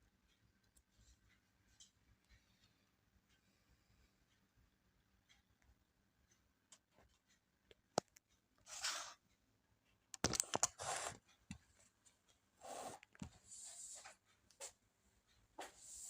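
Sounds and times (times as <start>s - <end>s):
sharp clicks of small parts: 10.1s - 10.8s
rustling and scraping: 10.2s - 14.8s.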